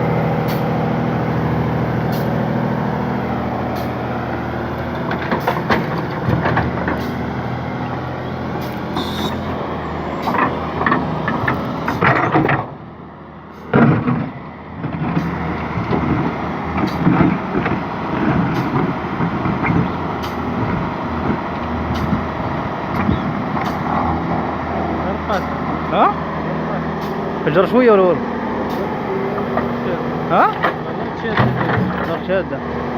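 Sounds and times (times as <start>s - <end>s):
diesel engine under load: 0.0s - 32.9s
metal clanks and knocks: 4.8s - 7.2s, 10.2s - 12.8s, 13.5s - 20.8s, 28.7s - 32.4s.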